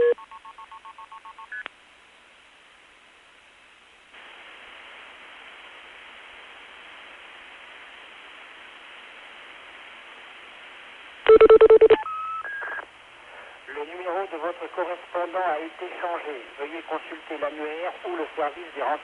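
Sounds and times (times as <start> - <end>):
telephone line hiss: 11.2 - 13.5.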